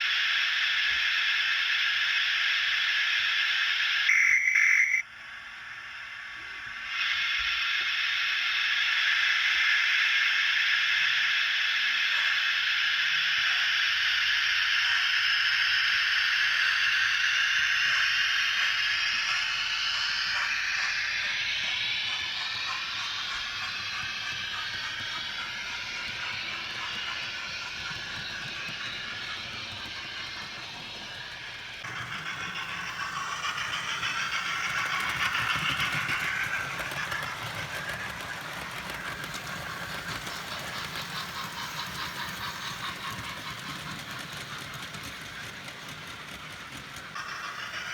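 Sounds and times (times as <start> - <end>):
steam hiss: 0.0 - 47.9
steam locomotive running rumble: 10.2 - 47.9.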